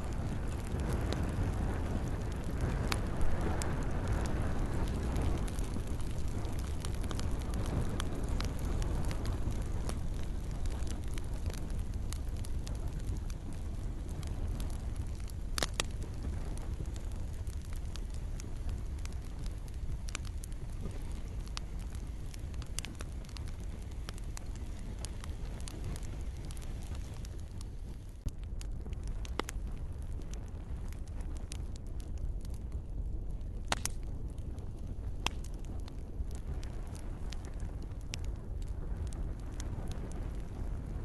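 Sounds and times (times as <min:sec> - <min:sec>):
gentle rain hissing: 0:00.0 - 0:28.2
campfire crackling: 0:00.0 - 0:41.0
sharp pops of fire: 0:00.0 - 0:41.0
steady low rumble: 0:00.0 - 0:41.0.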